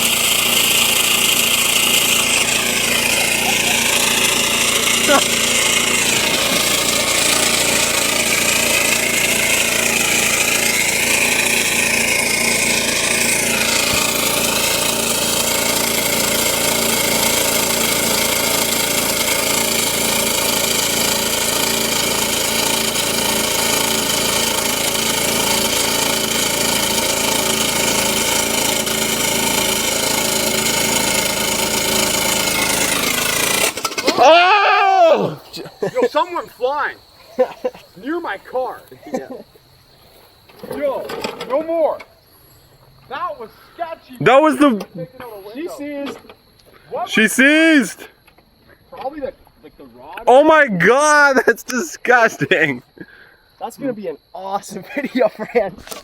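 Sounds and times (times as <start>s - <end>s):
lawn mower engine running: 0.0s - 44.8s, 50.3s - 52.8s.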